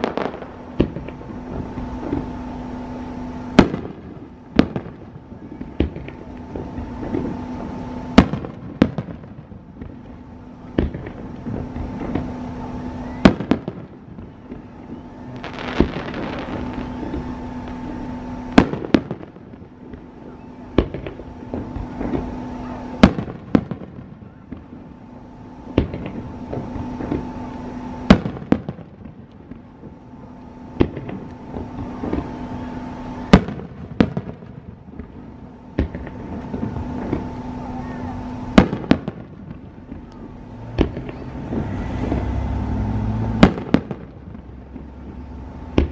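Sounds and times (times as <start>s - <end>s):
fireworks shells bursting: 0.0s - 5.0s, 13.2s - 30.0s, 38.2s - 45.9s
steady low hum: 0.0s - 45.9s.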